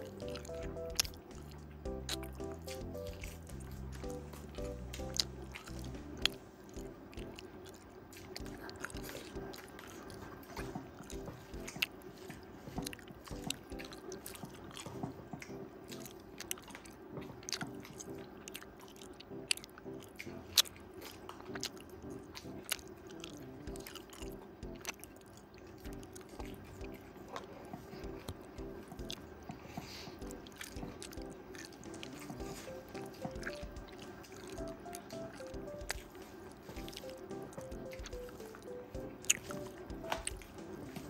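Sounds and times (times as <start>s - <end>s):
soft background music: 0.0s - 41.0s
wet chewing and crunching: 0.0s - 41.0s.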